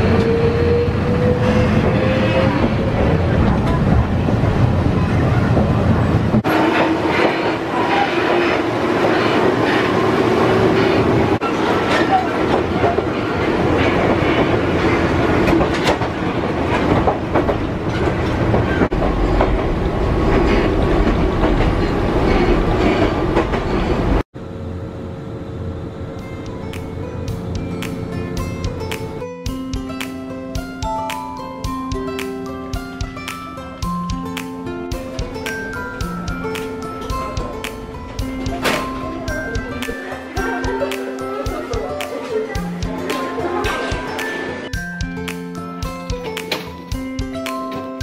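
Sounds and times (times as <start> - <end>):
train wheels rumbling on rails: 0.0 - 24.2.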